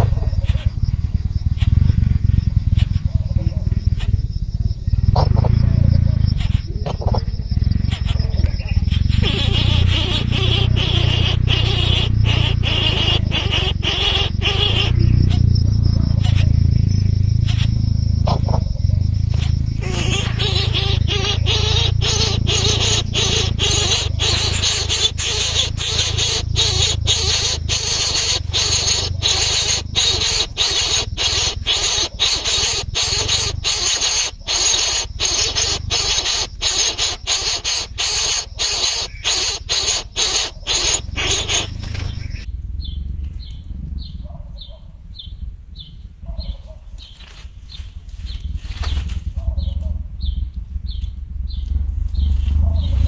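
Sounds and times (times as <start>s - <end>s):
low rumble: 0.0s - 13.4s, 14.3s - 32.2s, 41.0s - 44.4s, 47.6s - 53.0s
insects chirping: 0.0s - 49.1s.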